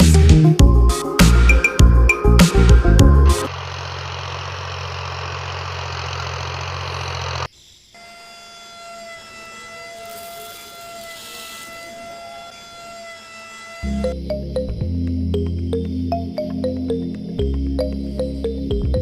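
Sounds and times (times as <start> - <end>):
small motor humming: 3.5 - 14.2.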